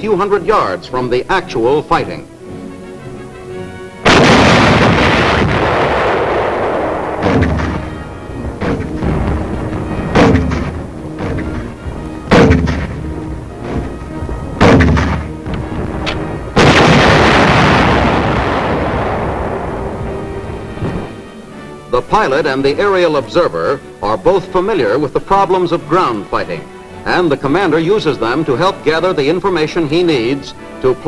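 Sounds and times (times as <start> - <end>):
artillery booms: 4.0 - 21.4.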